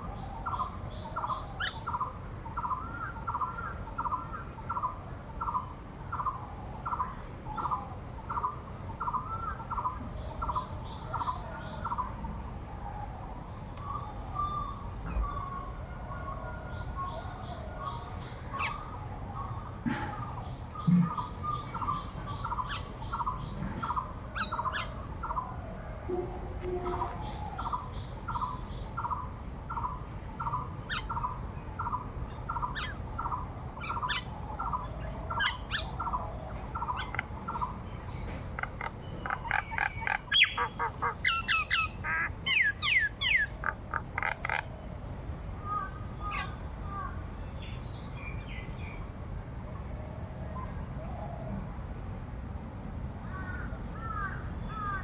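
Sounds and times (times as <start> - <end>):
birds calling: 17.0 - 44.6
high-pitched insect drone: 20.4 - 40.6.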